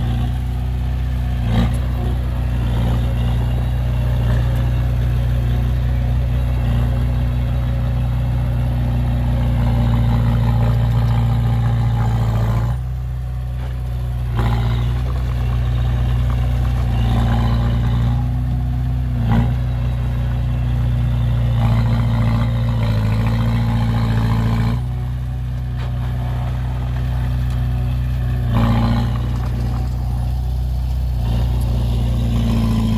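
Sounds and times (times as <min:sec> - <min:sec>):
heavy diesel engine droning: 0:00.0 - 0:32.9.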